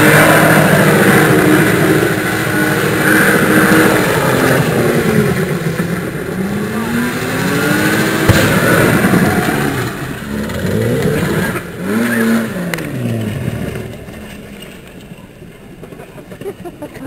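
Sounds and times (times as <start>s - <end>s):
car engine revving hard: 0.0s - 14.9s.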